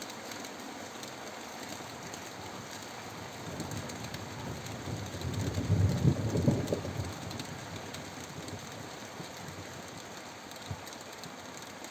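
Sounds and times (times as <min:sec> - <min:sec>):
heavy rain pouring: 0:01.6 - 0:11.0.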